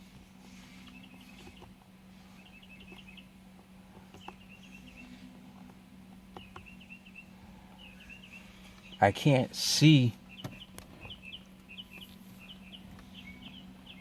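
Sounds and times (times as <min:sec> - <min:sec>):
low hum: 0:00.0 - 0:14.0
bird chirping: 0:00.6 - 0:14.0.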